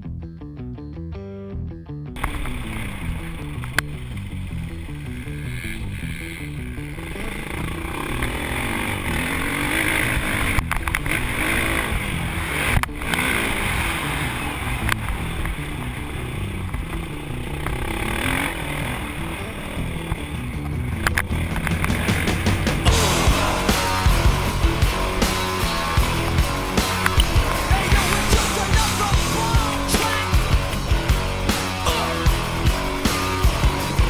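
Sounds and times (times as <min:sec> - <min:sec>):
dirt bike engines running: 0:02.2 - 0:34.0
sharp clicks: 0:25.2 - 0:29.0.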